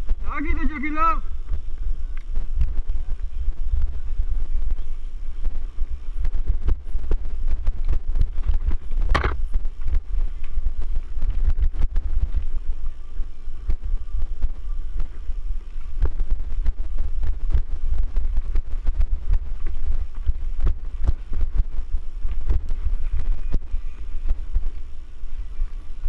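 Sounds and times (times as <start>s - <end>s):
wind buffeting microphone: 0.0s - 26.0s
bike knocks and rattles: 7.6s - 12.6s.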